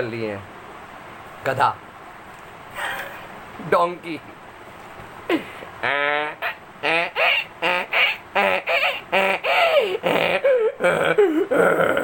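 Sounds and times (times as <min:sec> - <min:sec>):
man imitating donkey bray: 0:05.8 - 0:12.0.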